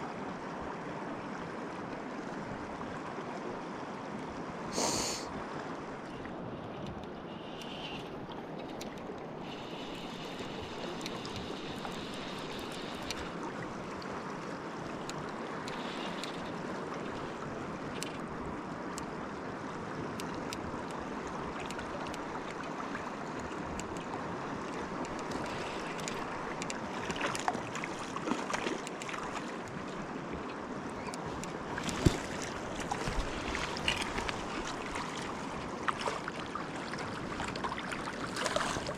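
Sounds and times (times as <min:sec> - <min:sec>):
flowing river water: 0:00.0 - 0:38.9
splashing and knocking: 0:31.9 - 0:34.1.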